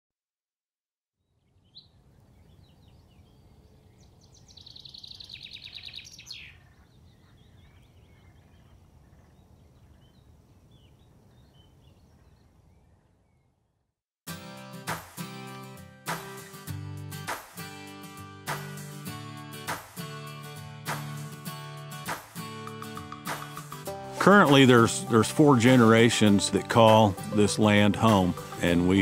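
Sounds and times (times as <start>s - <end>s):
bird trill: 1.3s - 13.5s
birds chirping: 1.3s - 13.8s, 22.4s - 29.0s
music: 14.3s - 29.0s.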